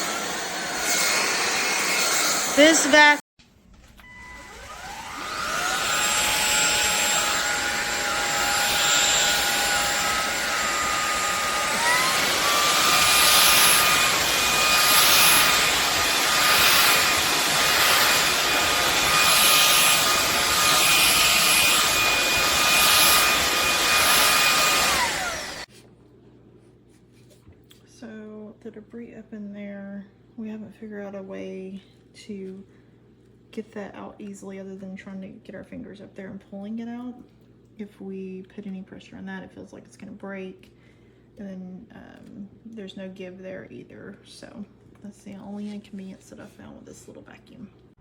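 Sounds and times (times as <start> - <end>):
stick vacuum cleaner running: 0.0 - 3.2, 3.8 - 25.7.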